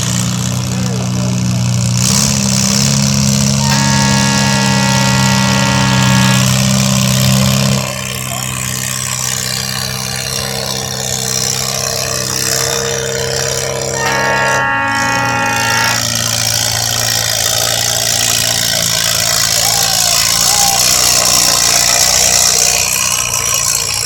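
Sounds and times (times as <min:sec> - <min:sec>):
vehicle engine idling: 0:00.0 - 0:24.0
high steady whine: 0:03.6 - 0:07.0, 0:13.9 - 0:16.2.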